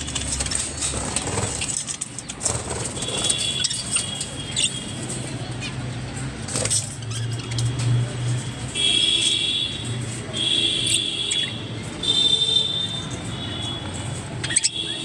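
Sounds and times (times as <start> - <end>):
budgerigars chattering: 2.4 - 7.8, 14.3 - 15.0.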